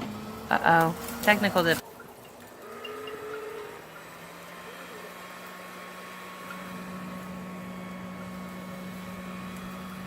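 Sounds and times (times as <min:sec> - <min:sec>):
vacuum motor humming: 0:02.4 - 0:10.0.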